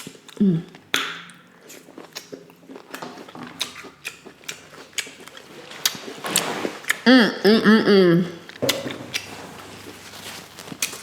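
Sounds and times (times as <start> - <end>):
sharp eating clicks: 0.0 - 6.0
chewing with wet crackles: 0.0 - 7.1, 8.4 - 11.0.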